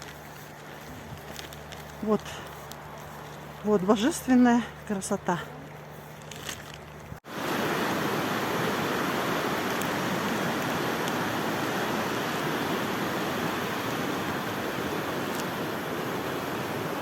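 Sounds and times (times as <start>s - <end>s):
fast river rushing: 6.6s - 17.0s.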